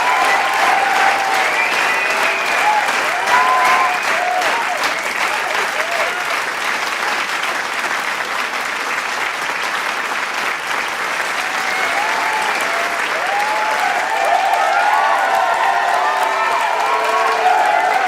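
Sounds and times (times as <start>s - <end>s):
crowd cheering and whooping: 0.0s - 6.3s, 11.2s - 18.0s
crowd clapping: 0.0s - 18.0s.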